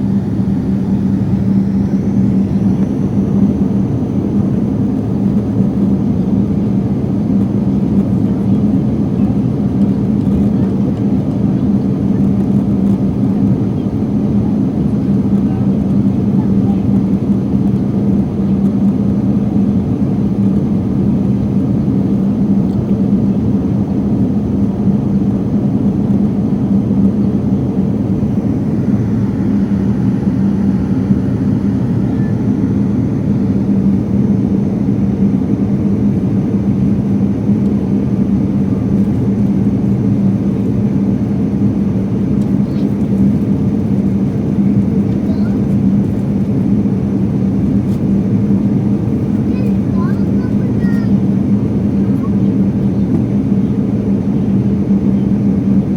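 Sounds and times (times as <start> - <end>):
airliner cabin engine rumble: 0.0 - 55.9
constant low hum: 0.0 - 55.9.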